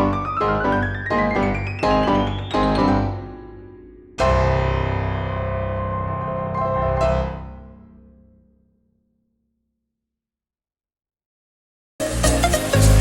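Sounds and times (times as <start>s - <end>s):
piano chord and notes: 0.0s - 8.4s.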